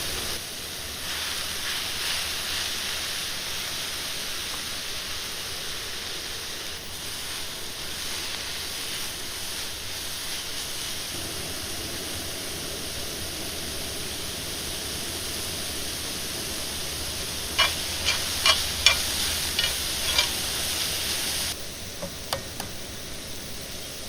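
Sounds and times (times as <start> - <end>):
food sizzling in a pan: 0.0 - 21.6
utensil tapping and scraping pan: 17.6 - 20.6.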